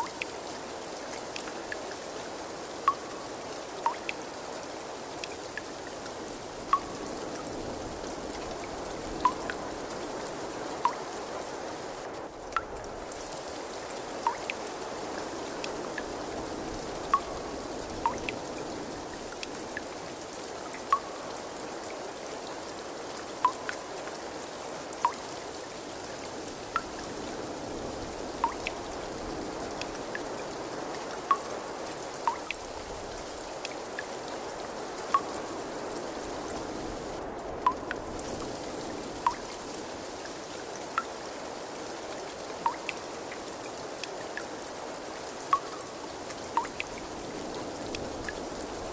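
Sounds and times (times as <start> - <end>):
water trickling: 0.0 - 48.9
drops plinking into water: 2.9 - 3.1, 6.7 - 6.9, 14.3 - 14.6, 17.1 - 17.3, 23.4 - 23.8.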